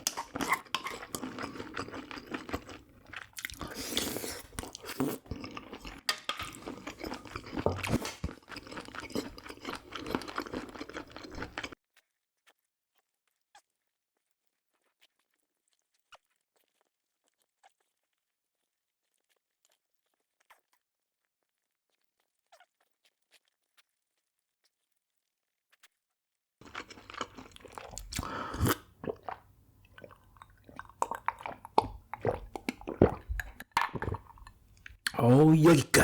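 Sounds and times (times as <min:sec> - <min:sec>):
chewing and crunching food: 0:00.0 - 0:11.8, 0:14.8 - 0:20.8, 0:26.6 - 0:36.0
wet mouth clicks: 0:00.0 - 0:11.8, 0:26.6 - 0:36.0.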